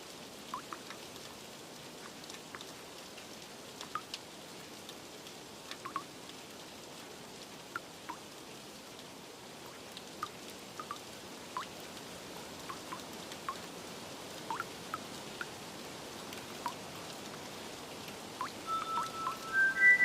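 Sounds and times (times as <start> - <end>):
steady rain: 0.0 - 20.0
water drops plinking: 0.6 - 0.9, 5.8 - 6.1, 10.8 - 11.0, 12.6 - 13.6, 14.5 - 15.5, 18.4 - 20.0.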